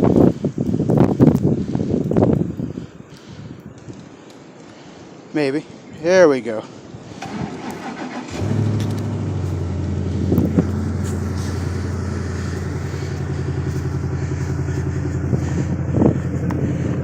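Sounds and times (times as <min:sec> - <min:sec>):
pickup truck engine idling: 0:07.2 - 0:17.0.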